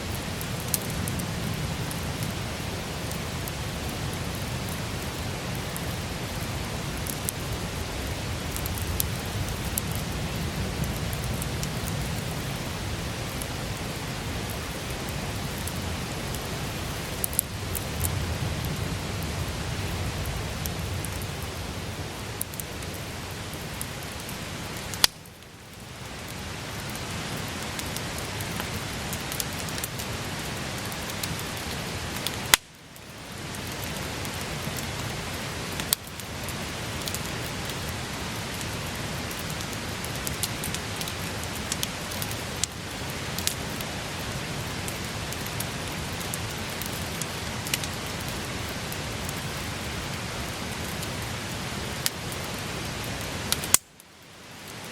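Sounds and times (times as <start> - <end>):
campfire crackling: 0.0 - 54.9
loud sharp fire pops: 24.9 - 25.3, 32.5 - 32.8.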